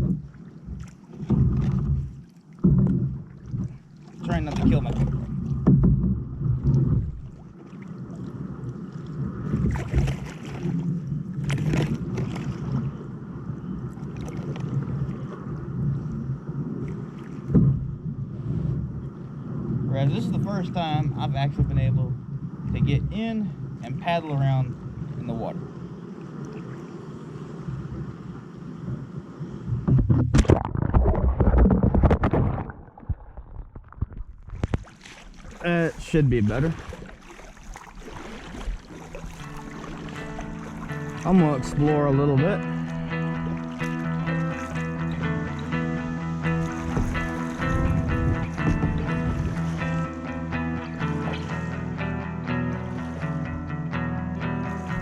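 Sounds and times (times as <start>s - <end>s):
paddle knocks: 0.0s - 7.5s, 17.4s - 18.0s, 46.5s - 50.4s
paddle strokes in water: 0.0s - 19.3s, 25.8s - 51.9s, 52.7s - 53.5s, 54.5s - 55.0s
short sharp splashes: 9.6s - 10.8s, 30.2s - 41.7s.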